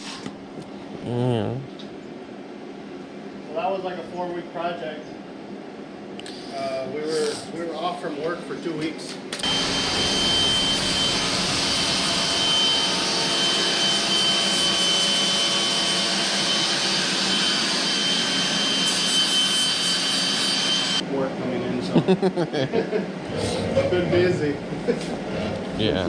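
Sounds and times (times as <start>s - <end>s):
power grinder whining: 9.4s - 21.0s.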